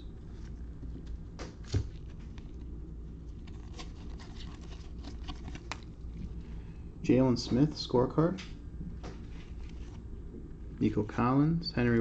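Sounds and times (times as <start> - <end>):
steady low hum: 0.0 - 12.0
cards being flipped through: 0.3 - 6.2, 9.0 - 10.0.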